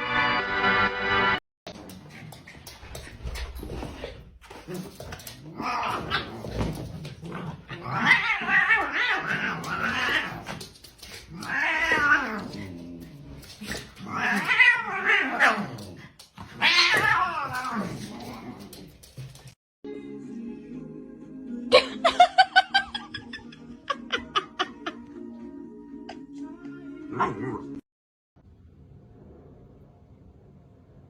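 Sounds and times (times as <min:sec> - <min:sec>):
cat yowling: 0:07.9 - 0:10.5.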